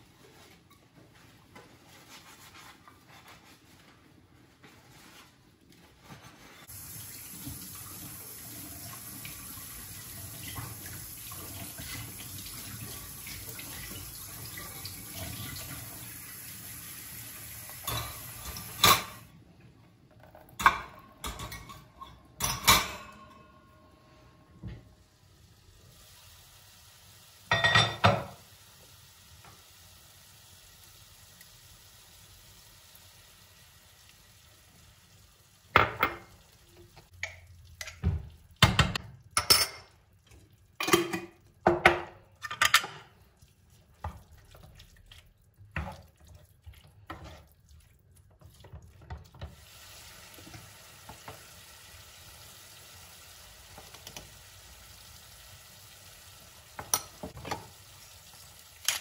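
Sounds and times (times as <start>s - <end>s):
food frying in a pan: 6.6s - 19.3s, 24.9s - 59.0s
utensils and cookware clinking: 17.8s - 19.3s, 20.3s - 23.9s, 27.5s - 28.4s, 38.7s - 40.0s, 40.8s - 43.2s.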